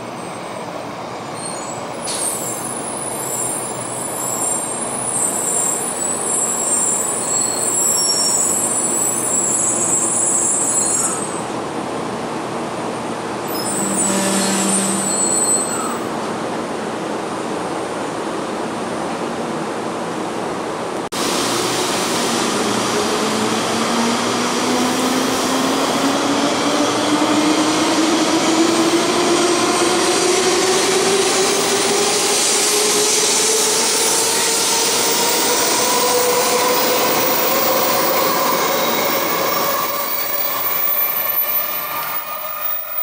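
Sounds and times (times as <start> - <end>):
train rolling noise: 18.7 - 43.0.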